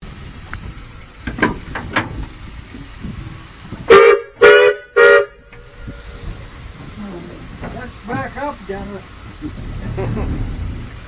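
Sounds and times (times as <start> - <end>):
steam locomotive whistle blasts: 3.9 - 5.6.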